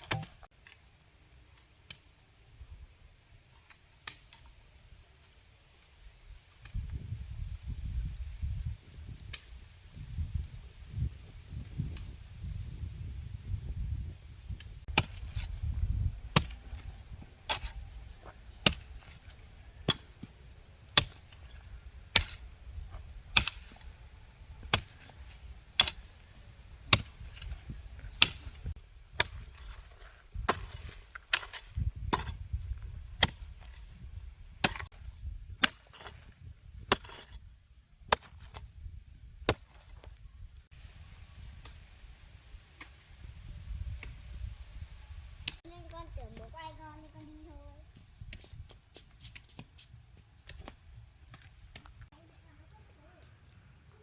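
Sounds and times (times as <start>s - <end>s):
hand tool chopping: 23.3s - 23.9s, 24.6s - 26.1s, 34.6s - 34.9s, 36.9s - 37.4s.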